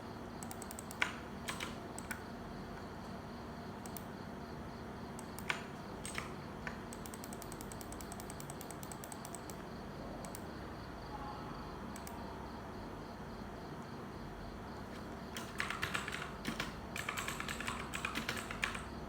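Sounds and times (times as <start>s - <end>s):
light clicks: 12.0s - 12.2s.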